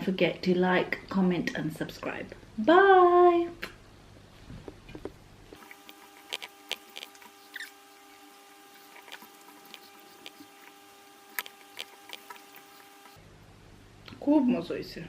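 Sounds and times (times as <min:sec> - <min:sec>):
faint steady hum: 0:00.0 - 0:15.0
mouth clicks and smacks eating: 0:05.6 - 0:13.2.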